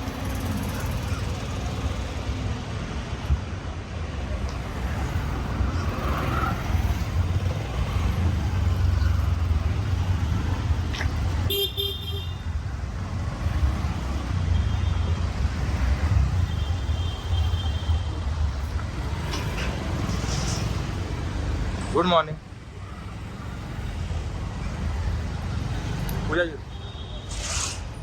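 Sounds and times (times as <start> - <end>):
street traffic rumble: 0.0 - 28.0
car horn beeps: 11.5 - 12.4.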